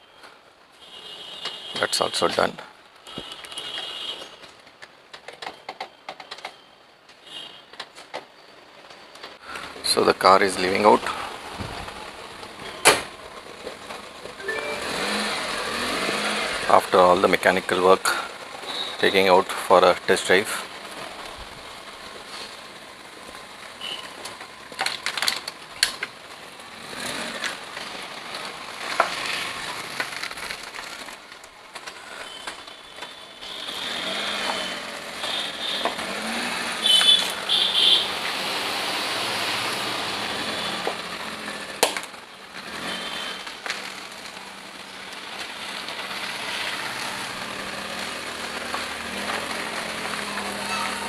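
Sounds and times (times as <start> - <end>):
road and traffic noise: 0.0 - 51.0
short high tones: 14.4 - 15.8.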